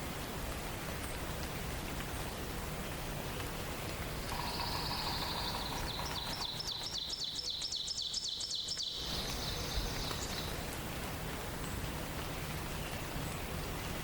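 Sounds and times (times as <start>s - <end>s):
steady background hiss: 0.0s - 14.0s
songbird singing: 3.2s - 14.0s.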